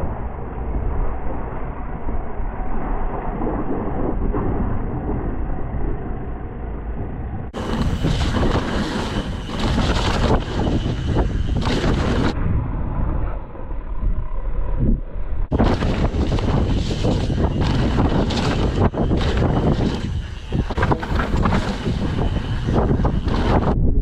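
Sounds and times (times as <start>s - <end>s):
wind rushing over microphone: 0.0s - 24.0s
bike knocks and rattles: 7.6s - 12.4s, 15.5s - 23.8s
tyre noise on trail: 7.6s - 12.4s, 15.5s - 23.8s.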